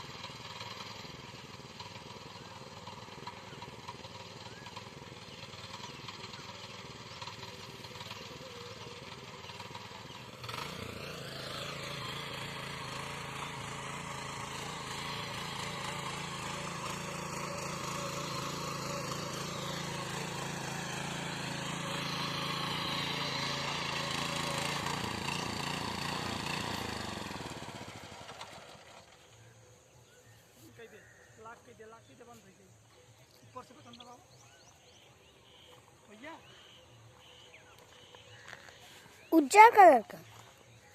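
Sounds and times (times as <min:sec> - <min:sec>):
tiller engine running: 0:00.0 - 0:29.9.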